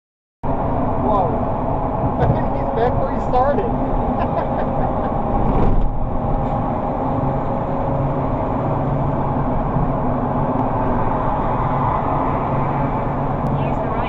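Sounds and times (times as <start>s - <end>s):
vehicle engine and road noise: 0.4s - 14.0s
low hum: 0.5s - 14.0s.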